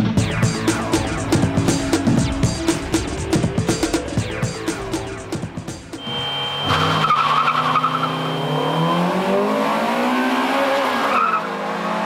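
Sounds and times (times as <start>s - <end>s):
tyre squeal: 6.0s - 9.1s
car engines revving hard: 6.0s - 12.0s.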